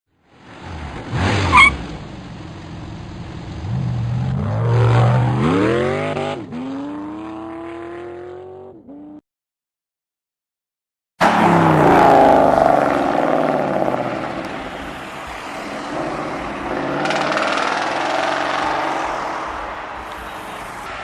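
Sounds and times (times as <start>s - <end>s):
car engine accelerating: 0.6s - 9.2s, 11.2s - 21.0s
short high squeal: 1.4s - 1.8s.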